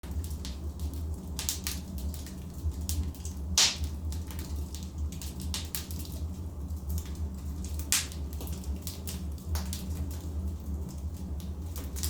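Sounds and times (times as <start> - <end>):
logs crackling in fireplace: 0.0 - 12.0
loud fire pop: 3.6 - 3.9.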